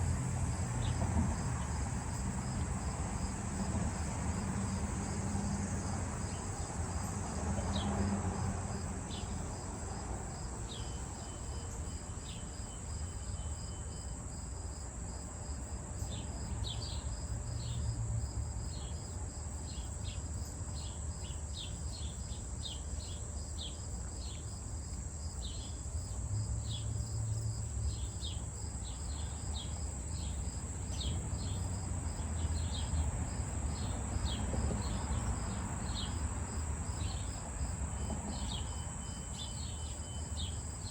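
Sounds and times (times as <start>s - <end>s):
crickets buzzing and trilling: 0.0s - 40.9s.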